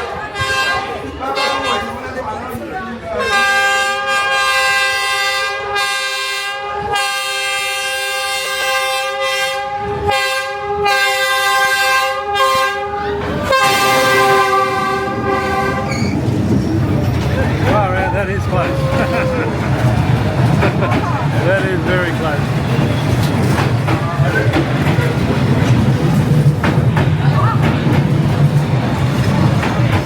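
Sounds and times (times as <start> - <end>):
train horn blasts: 0.3 - 2.1, 3.2 - 16.2.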